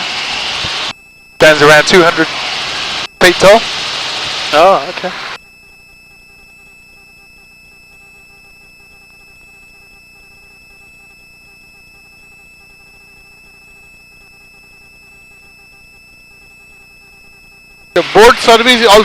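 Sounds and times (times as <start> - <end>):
high thin whine: 0.0 - 5.4, 12.9 - 19.0
helicopter cabin hum: 0.0 - 19.0.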